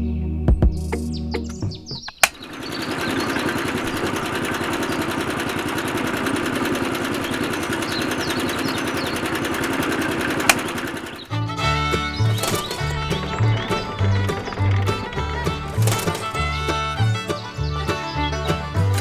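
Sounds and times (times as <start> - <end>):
motor switch click: 2.0 - 4.2, 10.2 - 11.3, 12.1 - 16.5
model motor rattling: 2.2 - 19.0.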